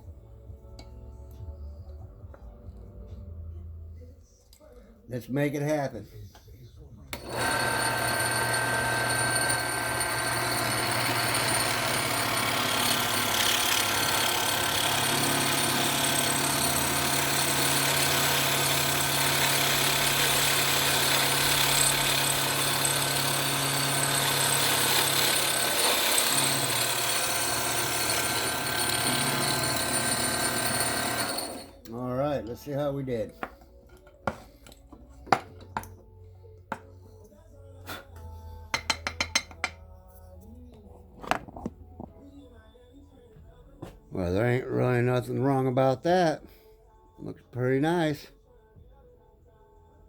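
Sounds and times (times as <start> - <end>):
drill press boring a hole: 7.2 - 31.7.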